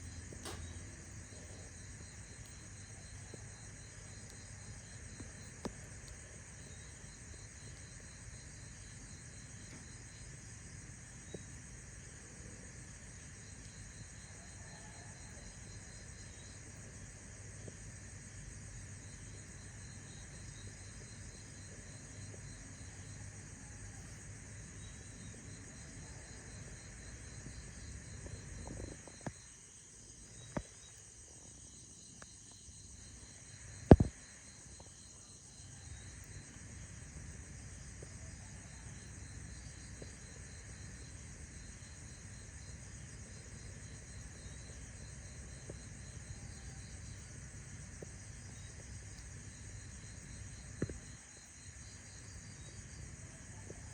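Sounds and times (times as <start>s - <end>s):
constant high hum: 0.0s - 53.9s
insects chirping: 0.0s - 53.9s.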